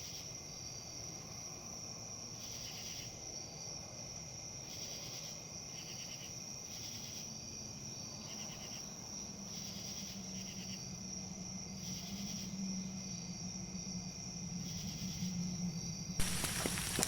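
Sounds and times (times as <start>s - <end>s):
crickets chirping: 0.0s - 17.0s
crackling pattering noise: 16.2s - 17.0s.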